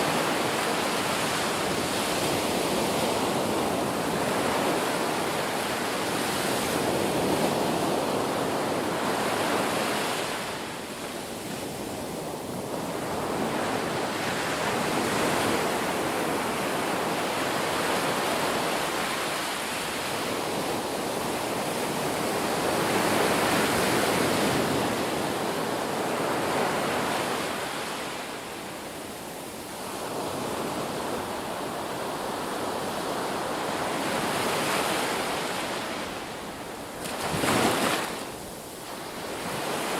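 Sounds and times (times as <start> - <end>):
ocean waves breaking: 30.0 - 39.9.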